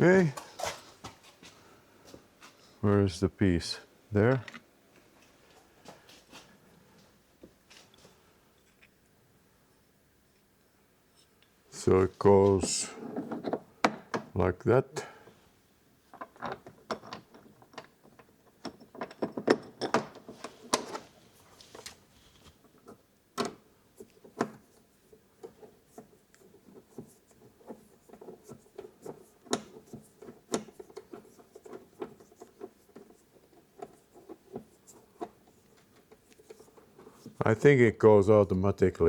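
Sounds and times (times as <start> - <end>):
small lock parts clicking and rattling: 16.1 - 21.1, 25.4 - 37.3.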